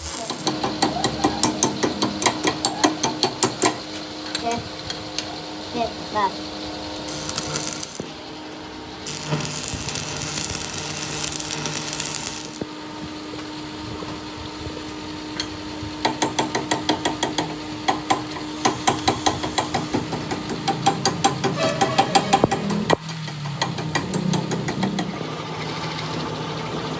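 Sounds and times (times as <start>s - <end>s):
hammer striking metal: 0.0s - 5.3s, 15.4s - 25.2s
hissing noise: 0.0s - 26.4s
steady machine hum: 0.0s - 26.9s.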